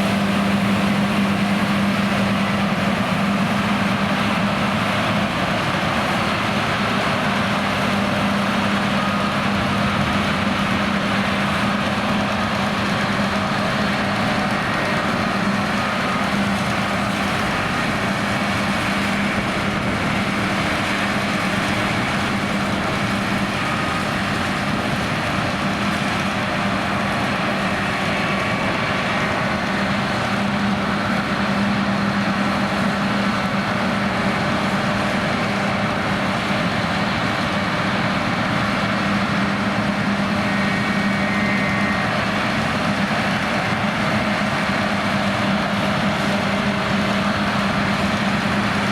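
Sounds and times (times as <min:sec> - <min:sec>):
combine harvester drone: 0:00.0 - 0:48.9.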